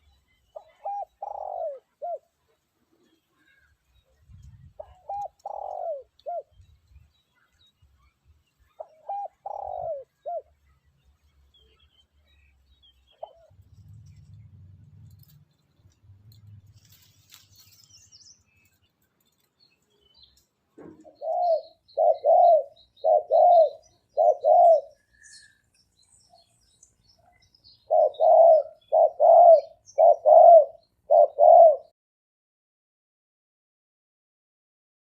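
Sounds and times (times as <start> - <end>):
dove cooing: 0.5 - 3.7, 4.3 - 6.6, 8.8 - 10.6, 13.1 - 15.3, 20.8 - 25.5, 27.3 - 31.9.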